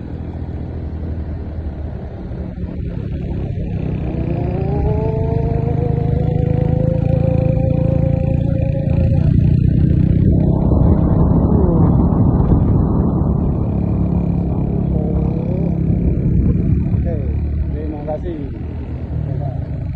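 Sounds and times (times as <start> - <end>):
vehicle engine accelerating: 0.0 - 19.9
rushing noise: 6.8 - 17.8.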